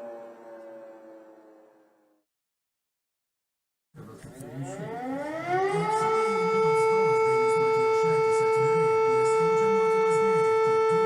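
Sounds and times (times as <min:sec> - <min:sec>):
low wavering drone: 0:00.0 - 0:02.2
warning siren: 0:00.0 - 0:02.3, 0:04.4 - 0:11.0.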